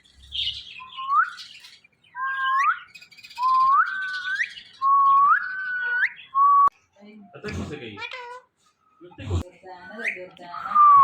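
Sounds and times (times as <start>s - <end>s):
parakeet whistling: 0.2s - 6.7s.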